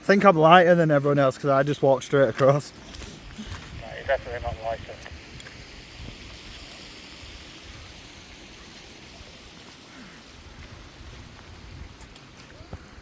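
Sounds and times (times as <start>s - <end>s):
stream water rushing: 2.1s - 13.0s
wind buffeting microphone: 3.2s - 8.5s, 10.4s - 13.0s.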